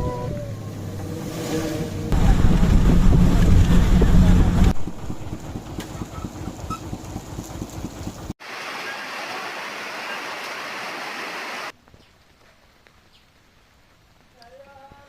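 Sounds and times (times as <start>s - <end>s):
rough fluttering rumble: 0.4s - 8.3s
rain hissing: 7.2s - 11.7s.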